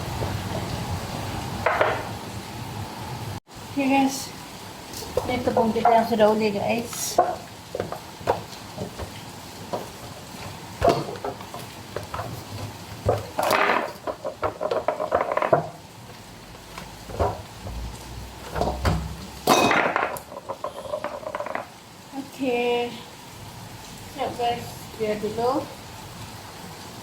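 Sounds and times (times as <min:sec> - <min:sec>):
bowls and utensils clinking: 0:18.5 - 0:21.6.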